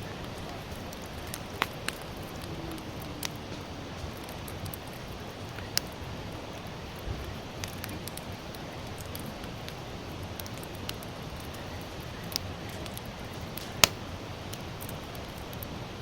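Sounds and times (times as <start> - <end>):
campfire hissing and crackling: 0.0 - 16.0
sharp fire pop: 13.6 - 14.1.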